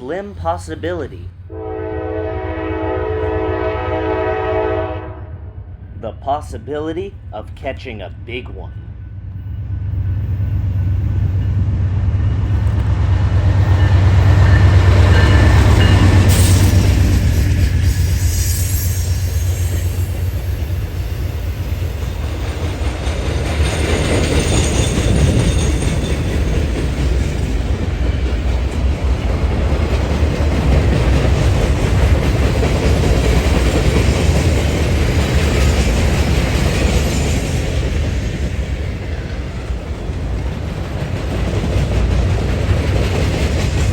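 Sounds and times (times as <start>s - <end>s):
train wheels clattering: 10.1s - 43.9s.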